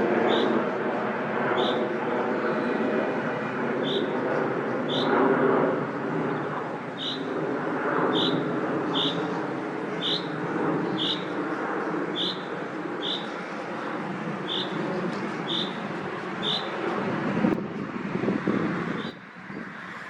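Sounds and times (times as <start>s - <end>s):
road traffic rumble: 0.0s - 20.0s
finch call notes: 7.0s - 7.3s, 11.0s - 11.3s, 12.2s - 13.4s, 14.4s - 14.8s, 15.4s - 15.8s, 16.4s - 16.7s.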